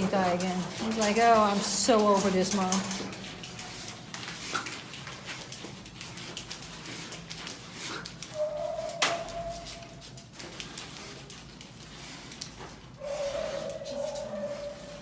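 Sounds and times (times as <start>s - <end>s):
dog whining: 8.2s - 10.0s, 13.0s - 15.0s.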